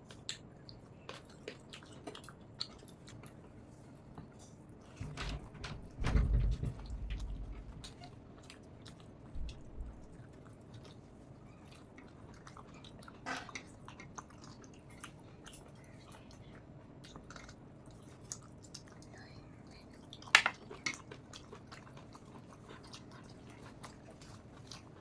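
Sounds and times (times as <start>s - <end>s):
chewing mouth noises: 0.0s - 5.0s, 7.5s - 25.0s.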